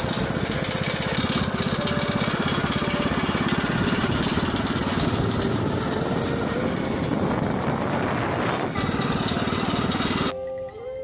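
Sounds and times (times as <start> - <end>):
motorbike engine running: 0.0 - 10.4
rush of noise: 3.4 - 10.3.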